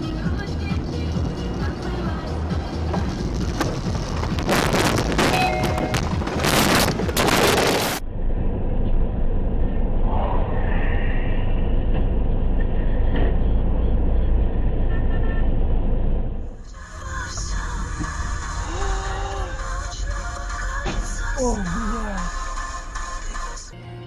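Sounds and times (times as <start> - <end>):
road vehicle driving rumble: 0.0 - 23.7
loud full-range noise: 16.4 - 23.7.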